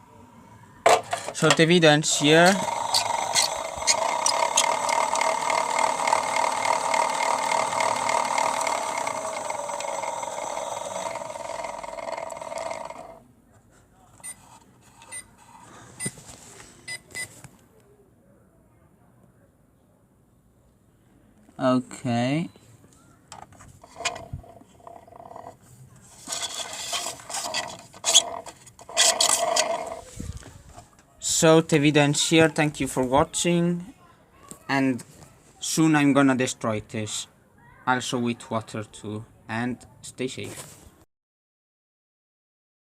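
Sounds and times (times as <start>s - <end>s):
bricks scraping and rattling: 0.9s - 13.2s, 23.3s - 30.9s
grinding rasp: 0.9s - 13.2s, 23.8s - 30.2s
small electric motor whining: 2.0s - 13.2s, 23.8s - 30.4s.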